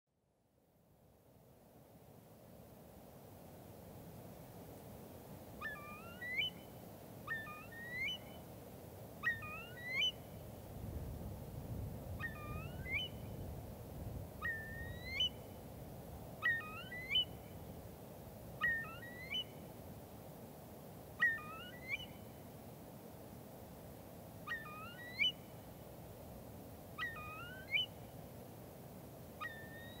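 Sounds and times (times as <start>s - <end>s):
bird calling: 5.6s - 6.6s, 7.3s - 8.4s, 9.2s - 10.2s, 14.4s - 15.4s, 16.4s - 17.4s, 18.6s - 19.5s, 21.2s - 22.2s, 24.4s - 25.4s, 27.0s - 28.0s, 29.4s - 30.0s.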